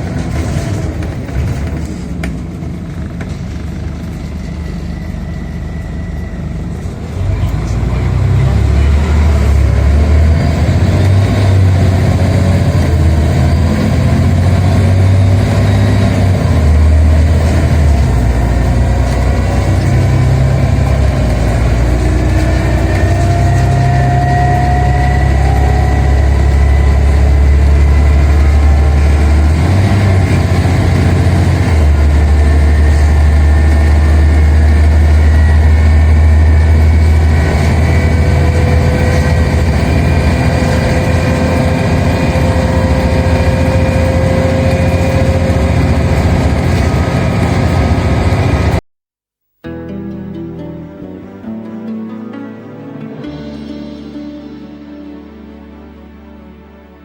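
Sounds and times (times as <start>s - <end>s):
bus engine drone: 0.0s - 48.8s, 49.7s - 57.0s
faint gliding whine: 3.5s - 7.4s.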